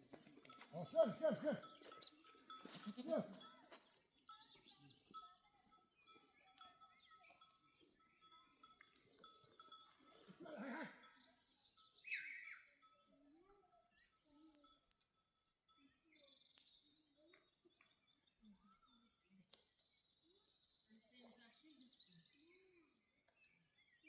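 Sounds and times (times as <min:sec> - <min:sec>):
livestock bells tinkling: 0:00.0 - 0:16.5
goats bleating: 0:02.8 - 0:03.4.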